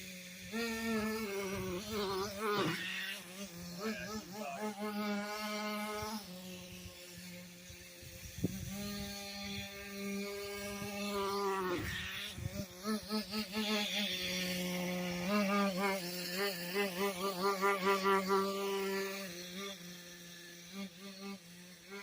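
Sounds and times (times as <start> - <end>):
small nitro engine whine: 0.0 - 22.0.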